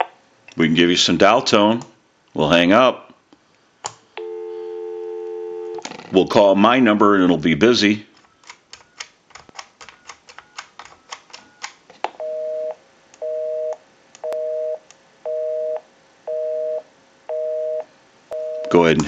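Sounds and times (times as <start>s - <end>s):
faint dialing tones: 4.2s - 5.8s
telephone busy signal: 4.2s - 5.8s, 12.2s - 17.8s
telephone dialing clicks: 8.4s - 11.8s.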